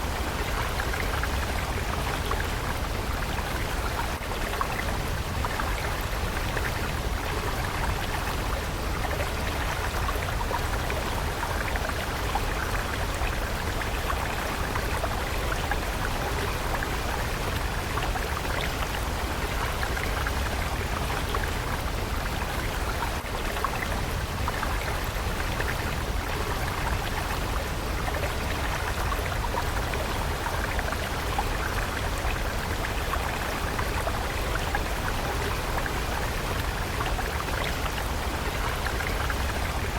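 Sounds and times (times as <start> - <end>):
water stream rushing: 0.0 - 39.9.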